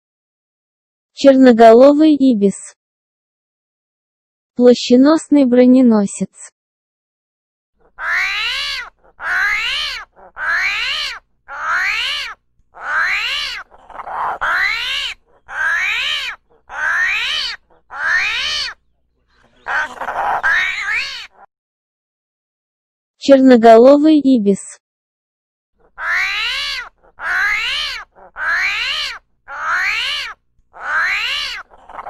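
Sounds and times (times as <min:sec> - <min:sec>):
animal calling: 0:07.8 - 0:21.5, 0:25.8 - 0:32.0.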